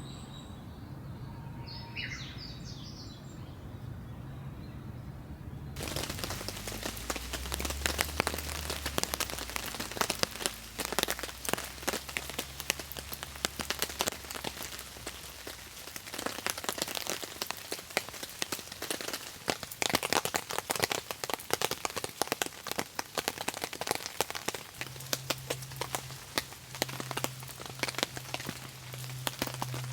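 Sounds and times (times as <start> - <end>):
raindrops striking a surface: 5.8 - 29.9.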